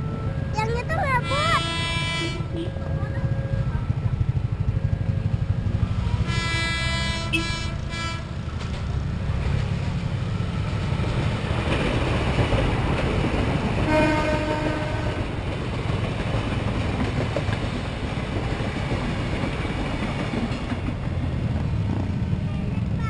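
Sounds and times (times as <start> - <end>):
train rumbling along track: 0.0 - 23.0
train horn blast: 1.2 - 2.8, 6.0 - 8.5, 13.8 - 15.4.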